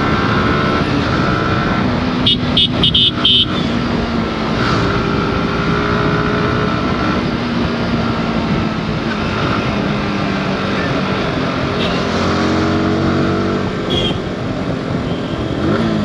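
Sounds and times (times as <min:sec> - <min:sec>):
road and traffic noise: 0:00.0 - 0:16.0
horn honk: 0:02.2 - 0:03.8, 0:11.7 - 0:12.1, 0:13.8 - 0:14.3.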